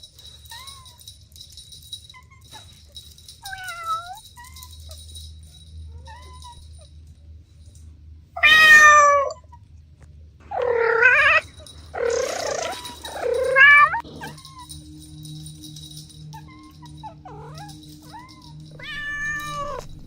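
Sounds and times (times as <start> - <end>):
cat meowing: 8.4 - 9.6, 10.5 - 14.4, 17.3 - 20.0.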